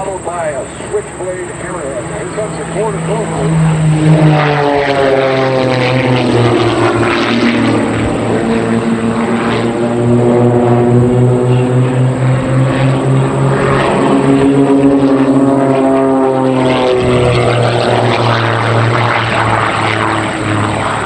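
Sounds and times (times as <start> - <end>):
propeller planes droning: 0.0 - 21.0.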